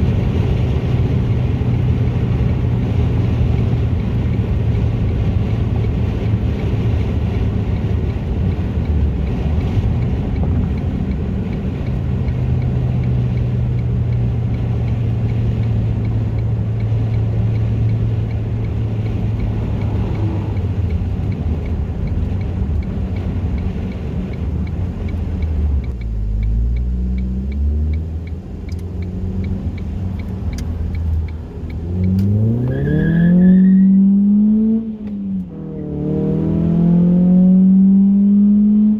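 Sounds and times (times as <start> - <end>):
car engine revving: 0.0 - 38.9
car exhaust droning: 0.0 - 38.9.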